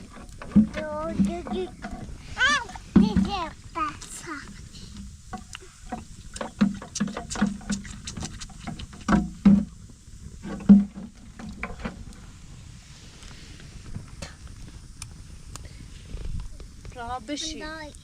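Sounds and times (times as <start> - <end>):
irregular knocks and thuds: 0.0 - 3.6, 4.5 - 12.1.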